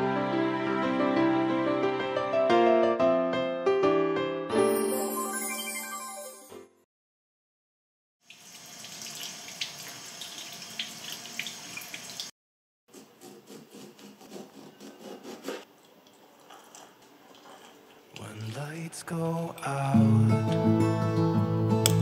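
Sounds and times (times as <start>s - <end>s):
water running from tap: 8.2s - 12.3s
knife cutting on wooden board: 12.9s - 15.7s.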